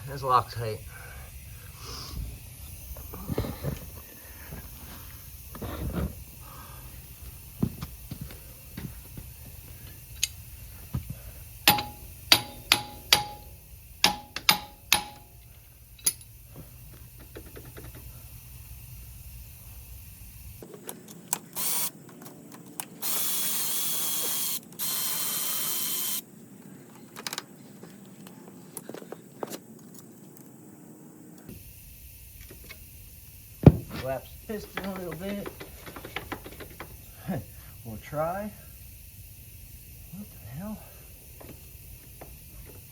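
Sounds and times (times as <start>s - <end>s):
hand tools clanking on metal: 11.7s - 16.3s, 34.0s - 37.0s
cordless power tool whirring: 21.6s - 21.9s, 23.0s - 26.2s.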